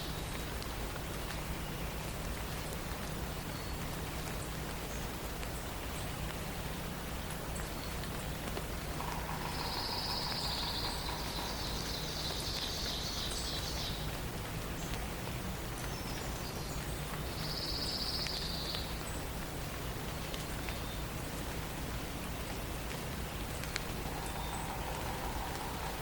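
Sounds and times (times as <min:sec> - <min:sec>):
steady forest hiss: 0:00.0 - 0:26.0
songbird trills: 0:07.6 - 0:14.2, 0:23.0 - 0:26.0.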